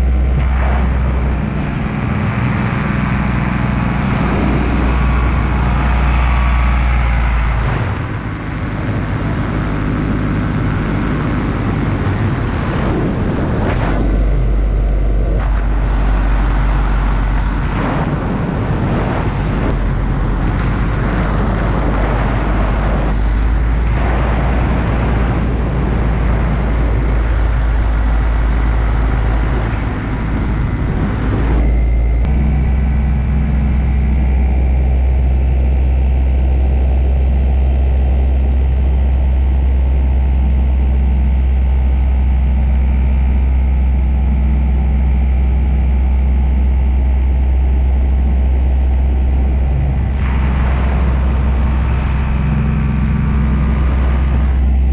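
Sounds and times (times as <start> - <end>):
wind-like rushing noise: 0.0 - 35.5, 48.3 - 54.9
engine running: 0.0 - 54.9.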